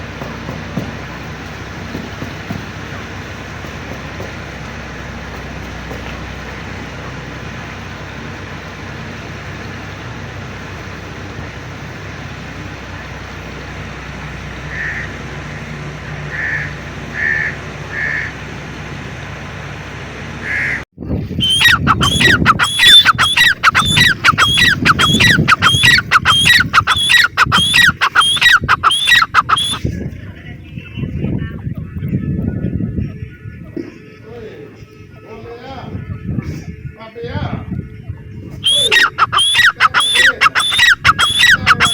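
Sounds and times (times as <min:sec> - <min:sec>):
francolin calling: 0:01.0 - 0:18.7, 0:20.4 - 0:29.9, 0:38.6 - 0:41.9.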